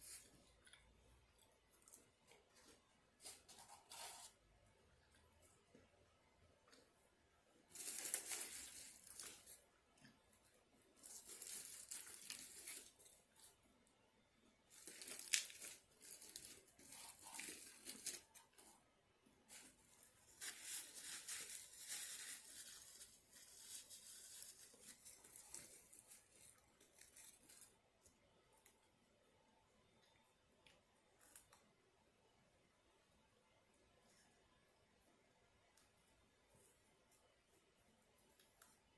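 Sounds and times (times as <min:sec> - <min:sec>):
paper crumpling and tearing: 0:03.2 - 0:04.4, 0:07.7 - 0:09.6, 0:11.0 - 0:13.2, 0:14.7 - 0:18.8, 0:19.5 - 0:27.7.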